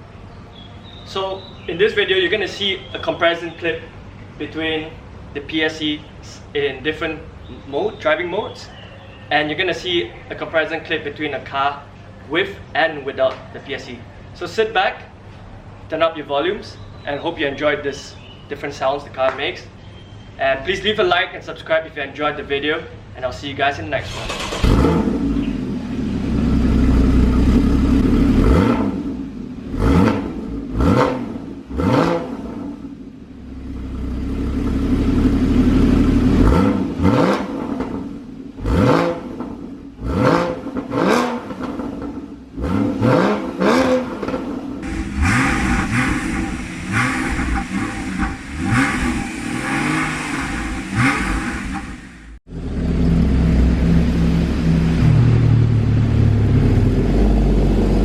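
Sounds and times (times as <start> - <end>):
car engine revving: 24.1 - 32.9, 33.6 - 58.0
car engine idling: 44.8 - 58.0.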